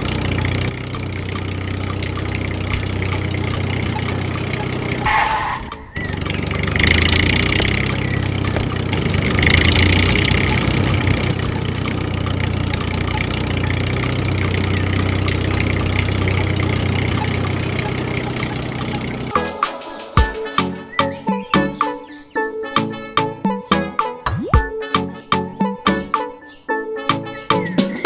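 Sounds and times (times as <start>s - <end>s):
small engine running: 0.0s - 19.4s.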